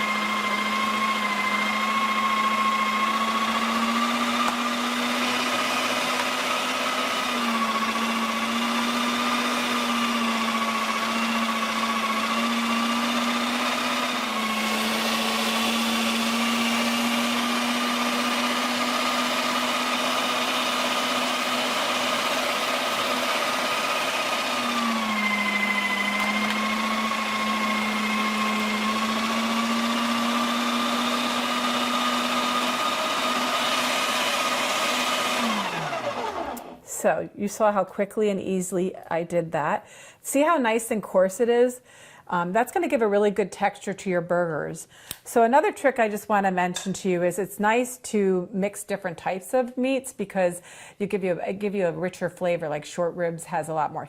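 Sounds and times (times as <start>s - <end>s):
electric meat grinder motor: 0.0s - 36.8s.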